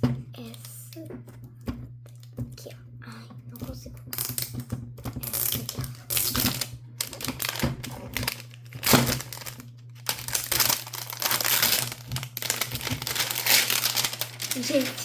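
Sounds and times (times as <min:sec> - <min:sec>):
plastic packaging crinkling: 0:05.2 - 0:15.0.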